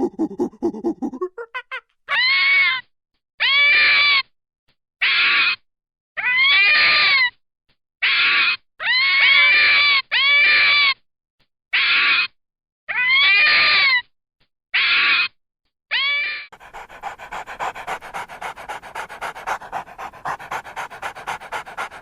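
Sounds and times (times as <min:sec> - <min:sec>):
animal high-pitched cries: 0:15.9 - 0:22.0.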